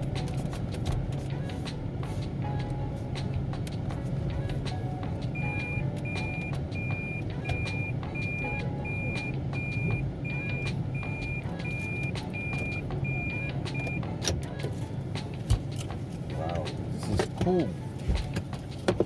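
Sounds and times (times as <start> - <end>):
vehicle engine humming: 0.0 - 19.0
vehicle reversing beeper: 5.4 - 14.0.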